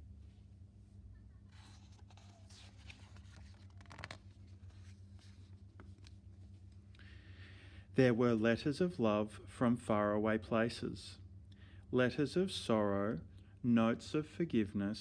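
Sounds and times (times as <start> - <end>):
low steady hum: 0.0 - 15.0
paper page turning: 1.5 - 6.2.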